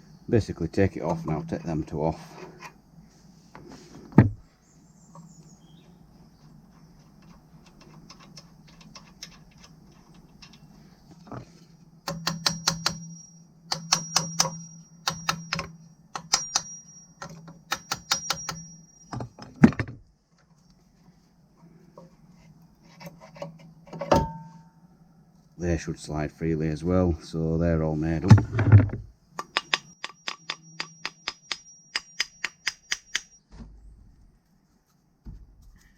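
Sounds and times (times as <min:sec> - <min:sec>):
sharp metal knock: 0:01.0 - 0:01.8, 0:12.1 - 0:19.2, 0:24.1 - 0:24.6, 0:29.4 - 0:33.4
ratchet wrench clicking: 0:12.1 - 0:13.1, 0:13.7 - 0:16.7, 0:17.7 - 0:18.6.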